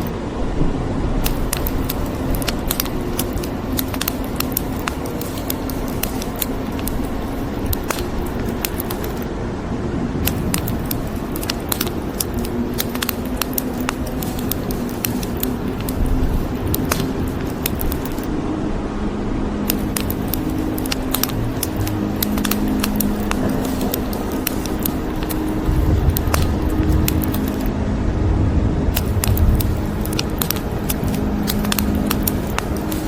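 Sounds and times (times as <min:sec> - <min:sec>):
rain hissing: 0:00.0 - 0:09.4, 0:10.2 - 0:18.4, 0:19.6 - 0:27.7, 0:28.9 - 0:33.0
wood fire crackling and popping: 0:01.2 - 0:09.3, 0:10.2 - 0:18.3, 0:19.7 - 0:27.7, 0:29.0 - 0:33.0
low rumble: 0:27.7 - 0:30.0.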